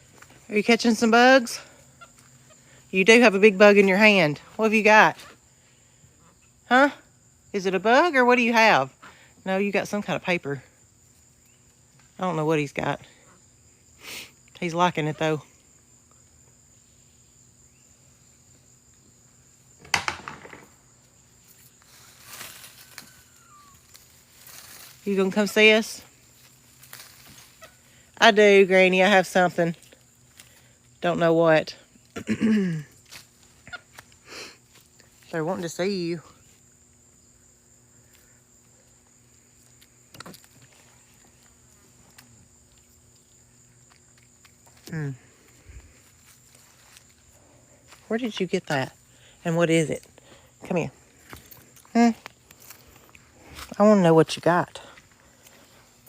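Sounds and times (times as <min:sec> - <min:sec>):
insects chirring: 0:00.0 - 0:56.0
sharp knock: 0:19.8 - 0:20.7
short rustle: 0:21.5 - 0:25.1.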